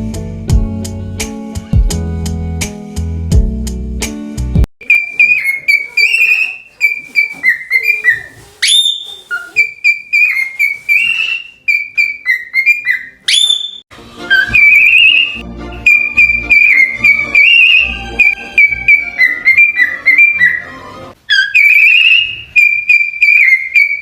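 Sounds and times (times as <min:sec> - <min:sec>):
cockatiel whistling: 0:04.8 - 0:24.0.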